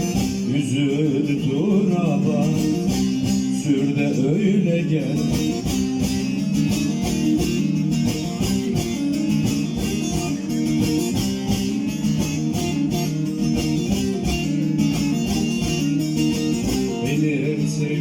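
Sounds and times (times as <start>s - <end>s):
plucked long-necked lute melody: 0.0s - 18.0s.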